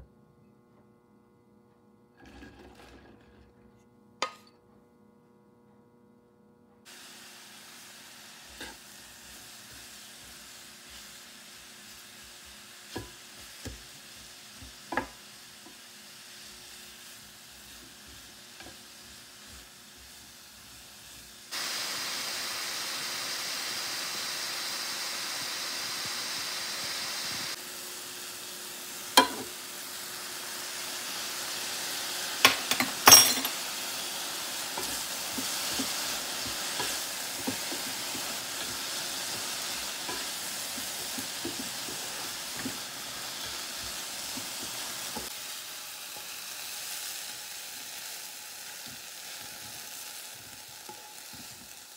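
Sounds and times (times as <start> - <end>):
food sizzling in a pan: 6.9 - 51.9
utensils clanking against pan: 29.2 - 29.6, 32.4 - 33.9, 34.7 - 45.3.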